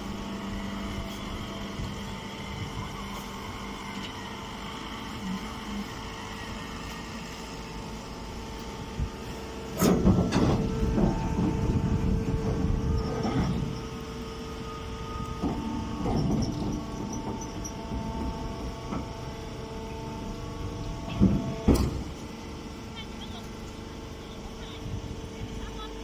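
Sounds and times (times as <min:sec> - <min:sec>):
baler motor hum: 0:00.0 - 0:26.0
loud clanks and rattles: 0:09.7 - 0:13.8, 0:15.4 - 0:19.2.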